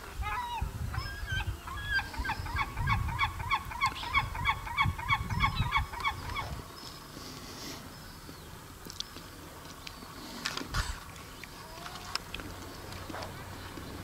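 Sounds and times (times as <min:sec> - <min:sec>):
low uneven rumble: 0:05.2 - 0:14.0.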